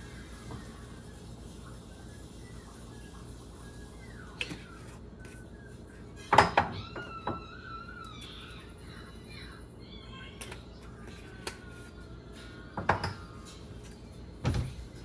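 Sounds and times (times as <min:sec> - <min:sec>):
kitchenware knocking and clinking: 0:06.3 - 0:07.4, 0:12.8 - 0:13.2.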